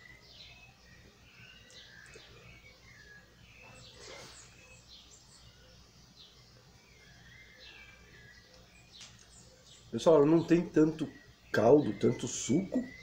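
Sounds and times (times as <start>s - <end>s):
faint small birds chirping: 0.0s - 13.0s.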